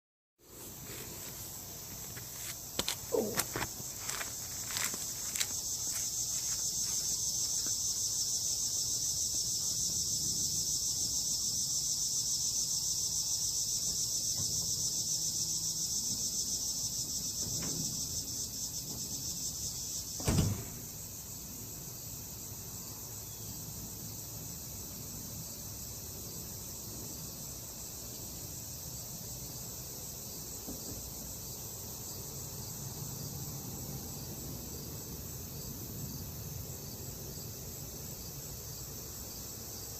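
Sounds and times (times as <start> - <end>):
insect chirring: 1.3 - 39.9
thump: 17.4 - 18.1, 20.2 - 20.9.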